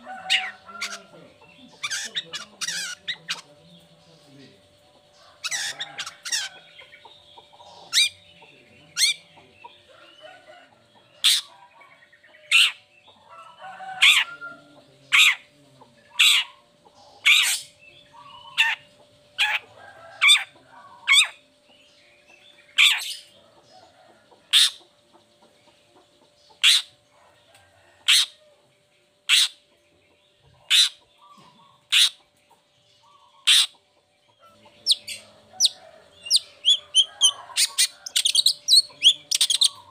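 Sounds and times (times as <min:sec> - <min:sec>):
bird giving harsh calls: 0:00.0 - 0:03.5, 0:05.2 - 0:06.8, 0:07.7 - 0:08.2, 0:08.9 - 0:09.2, 0:12.5 - 0:12.8, 0:16.1 - 0:16.6, 0:17.2 - 0:19.6, 0:20.2 - 0:21.4, 0:22.8 - 0:23.3, 0:24.5 - 0:24.8, 0:26.6 - 0:27.0, 0:28.0 - 0:28.4, 0:29.3 - 0:29.6, 0:30.6 - 0:32.2, 0:33.2 - 0:33.8, 0:34.8 - 0:39.9.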